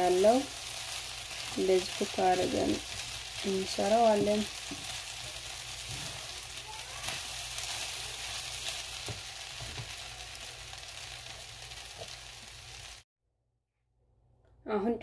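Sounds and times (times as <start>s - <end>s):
food sizzling in frying pan: 0.0s - 13.0s
wooden spatula scraping and knocking: 5.8s - 6.4s.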